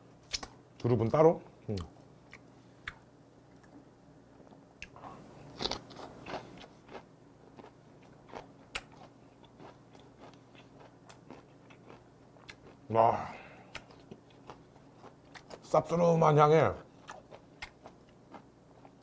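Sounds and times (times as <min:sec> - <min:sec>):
crunchy chewing with mouth clicks: 0:04.4 - 0:12.9, 0:13.6 - 0:15.7, 0:16.8 - 0:19.0.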